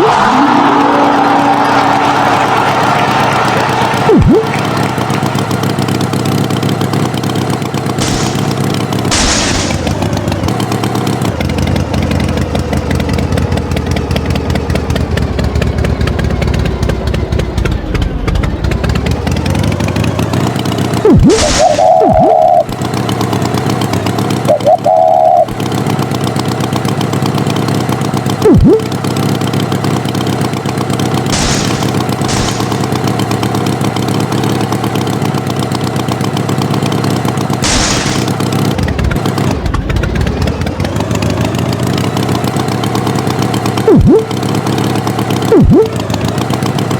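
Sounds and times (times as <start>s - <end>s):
tractor engine running: 0.0s - 46.9s
springy boing glides: 4.0s - 4.8s, 21.0s - 22.8s, 24.3s - 25.6s, 28.4s - 29.0s, 43.8s - 44.5s, 45.4s - 46.3s.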